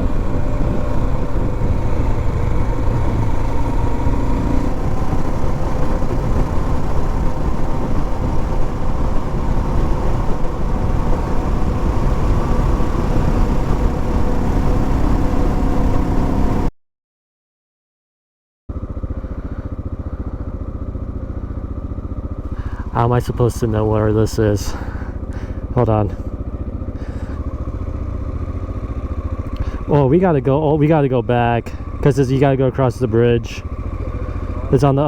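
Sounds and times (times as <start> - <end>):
motorcycle engine: 0.0 - 16.7, 18.7 - 35.0
wind noise: 0.0 - 16.7.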